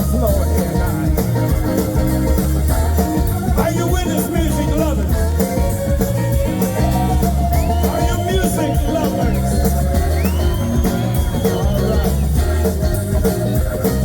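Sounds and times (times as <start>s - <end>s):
blues band playing: 0.0s - 14.0s
person singing: 3.1s - 12.9s.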